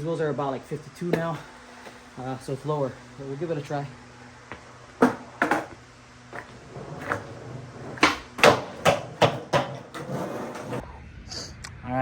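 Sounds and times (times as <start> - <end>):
sharp knocks and clacks: 7.9 - 10.1.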